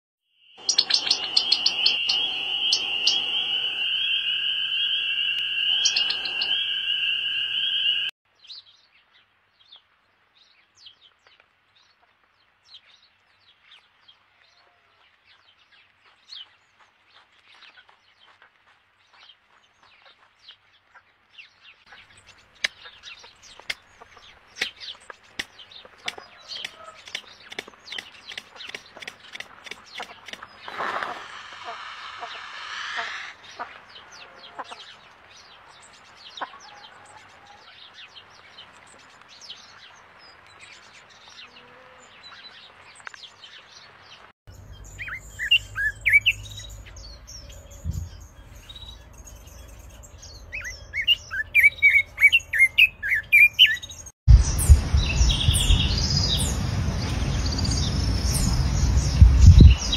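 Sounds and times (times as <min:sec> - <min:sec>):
bird trilling: 0:00.6 - 0:08.1, 0:44.8 - 0:48.7, 0:50.5 - 0:53.8.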